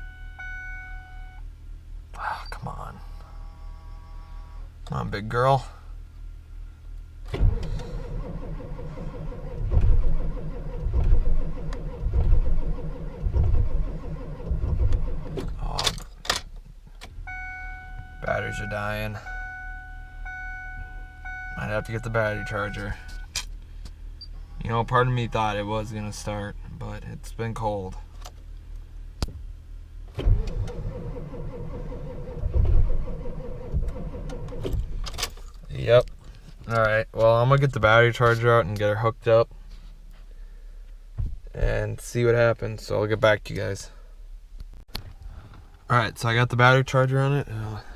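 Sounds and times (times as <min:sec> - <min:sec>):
diesel engine cranking: 0:07.2 - 0:26.4, 0:30.0 - 0:37.8.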